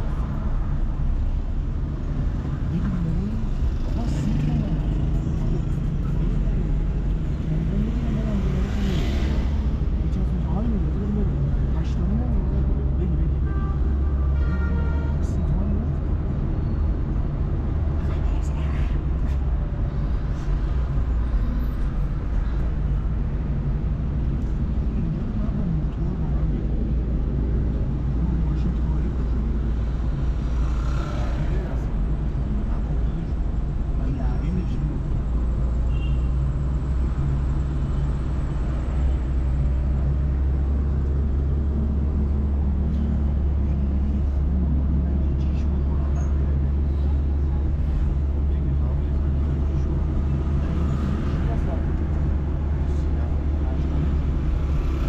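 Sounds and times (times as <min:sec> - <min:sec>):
car engine and tyre noise: 0:00.0 - 0:55.0
city traffic: 0:00.0 - 0:55.0.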